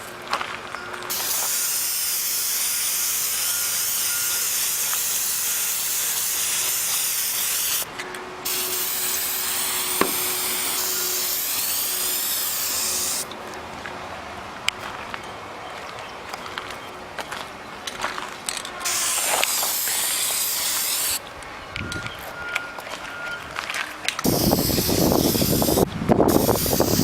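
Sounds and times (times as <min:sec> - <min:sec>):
spray-paint can hissing: 0:01.1 - 0:13.3, 0:18.8 - 0:21.2, 0:24.2 - 0:27.0.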